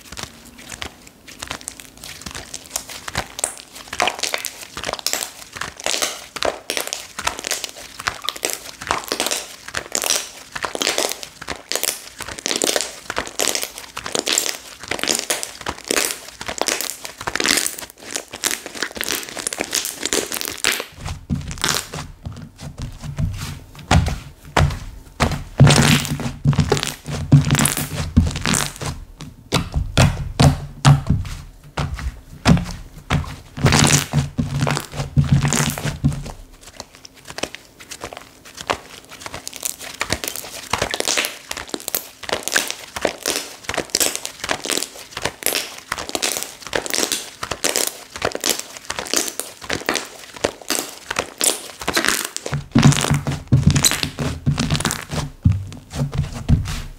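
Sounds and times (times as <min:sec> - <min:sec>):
hands squishing slime: 0:00.0 - 0:56.9
deep thuds: 0:21.0 - 0:36.6, 0:52.6 - 0:56.9.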